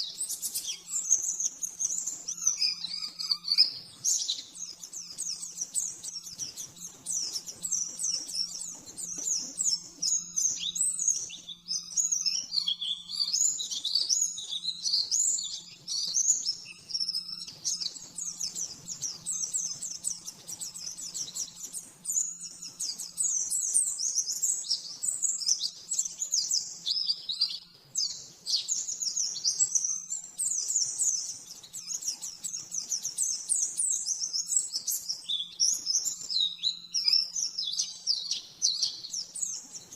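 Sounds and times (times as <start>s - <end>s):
bird high-pitched chirps and trills: 0.0s - 39.9s.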